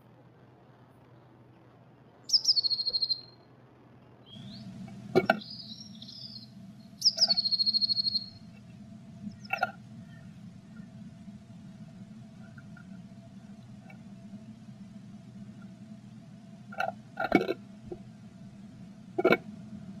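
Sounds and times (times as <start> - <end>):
bird chattering call: 2.3 - 3.3, 4.3 - 8.6, 9.2 - 11.0
blue tit singing trills: 2.3 - 3.3, 4.3 - 8.5.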